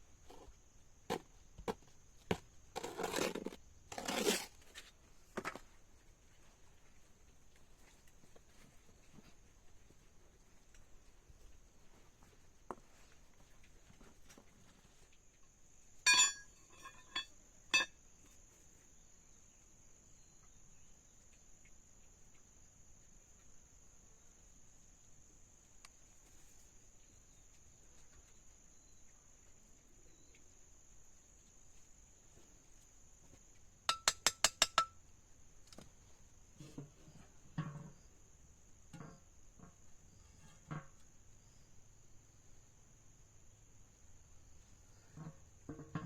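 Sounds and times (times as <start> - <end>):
sharp metallic clinks: 16.1 - 17.9.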